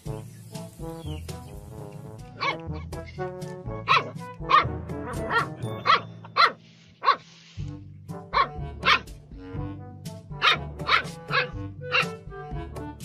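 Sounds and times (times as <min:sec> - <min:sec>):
background music with bass line: 0:00.0 - 0:06.4, 0:07.5 - 0:13.0
puppy yapping: 0:03.9 - 0:07.2, 0:08.3 - 0:09.1, 0:10.4 - 0:12.2.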